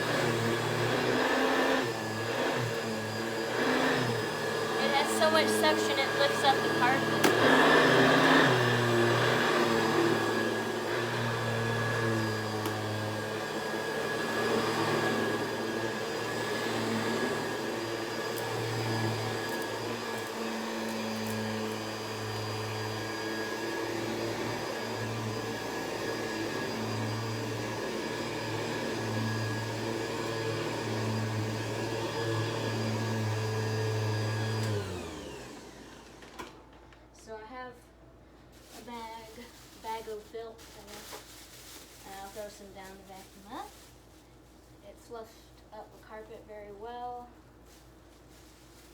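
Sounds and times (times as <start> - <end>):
vacuum motor winding down: 0.0 - 36.7
vacuum cleaner running: 0.0 - 37.7, 38.6 - 48.9.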